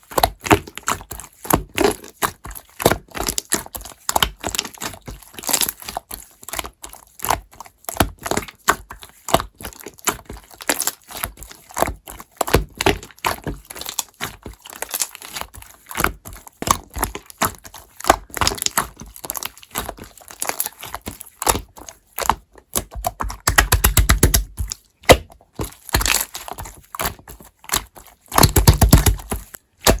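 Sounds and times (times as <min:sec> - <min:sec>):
slime clicking and crackling: 0:00.0 - 0:30.0
slime popping: 0:11.8 - 0:30.0.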